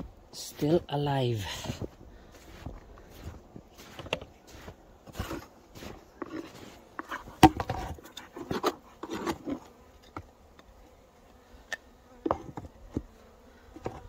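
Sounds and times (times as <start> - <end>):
crunching and scraping snow: 0.0 - 9.6
honeybees buzzing: 0.0 - 14.0.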